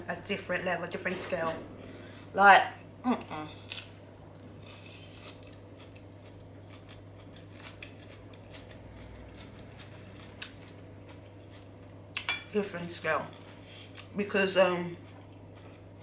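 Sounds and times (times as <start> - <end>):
crunching of salad being chewed: 3.6 - 12.3, 15.0 - 16.0.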